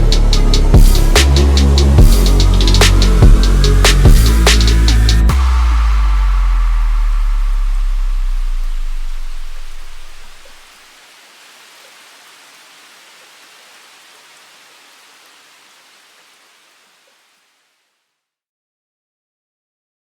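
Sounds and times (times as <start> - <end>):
electronic dance track bass: 0.0 - 10.6
white-noise hiss: 0.0 - 18.0.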